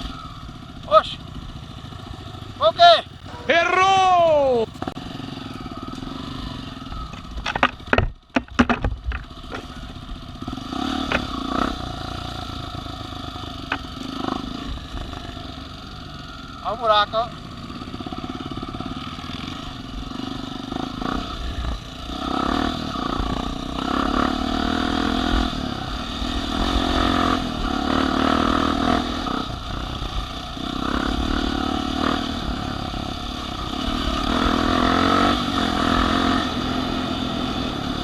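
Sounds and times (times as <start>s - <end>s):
off-road vehicle engine revving: 10.4s - 14.8s, 18.2s - 38.0s.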